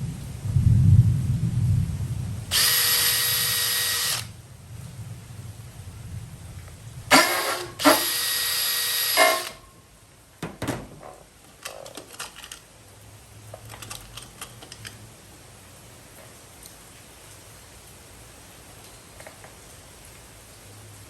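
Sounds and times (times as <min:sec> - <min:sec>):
power drill motor whine: 0:02.5 - 0:04.3, 0:07.1 - 0:09.6.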